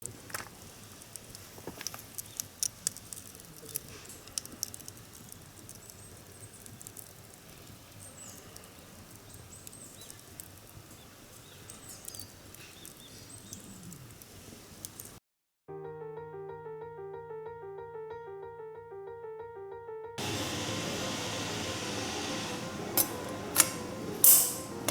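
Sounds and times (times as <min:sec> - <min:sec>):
wood fire crackling: 0:00.0 - 0:15.2, 0:20.2 - 0:24.9.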